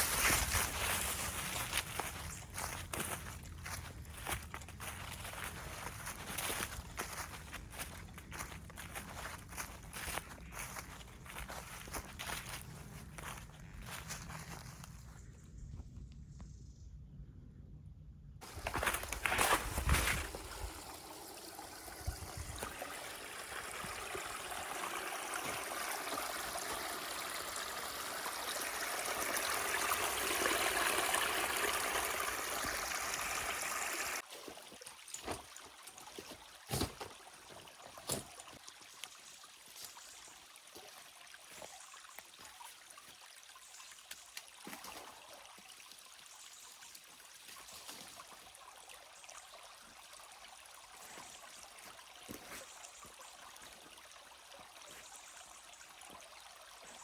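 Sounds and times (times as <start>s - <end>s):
stream water rushing: 18.4s - 43.2s.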